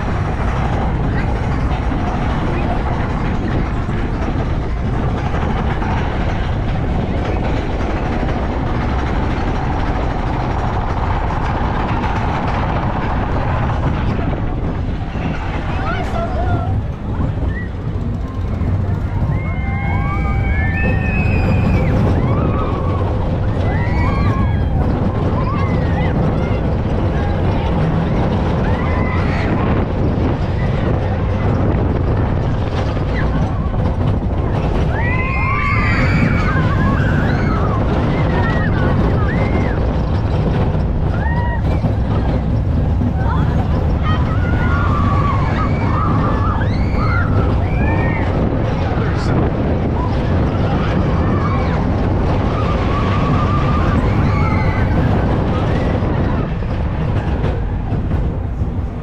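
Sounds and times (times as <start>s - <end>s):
roller coaster rumble and clatter: 0.0s - 59.0s
wind rushing: 0.0s - 59.0s
riders screaming: 18.4s - 26.7s, 28.4s - 29.7s, 34.6s - 40.4s, 41.0s - 42.4s, 43.2s - 57.3s.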